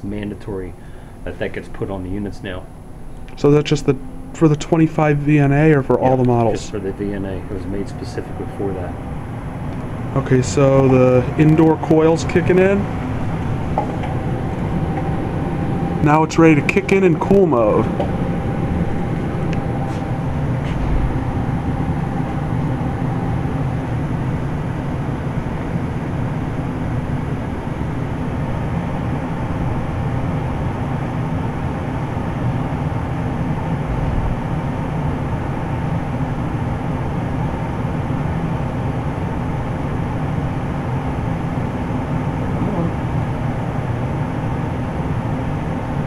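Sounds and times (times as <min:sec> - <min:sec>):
heat pump humming and whirring: 0:00.0 - 0:46.0.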